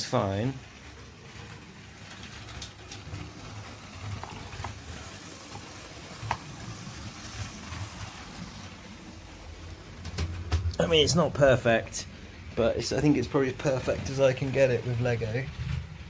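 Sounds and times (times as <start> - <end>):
toy train motor and wheel rattle: 0.0 - 12.0.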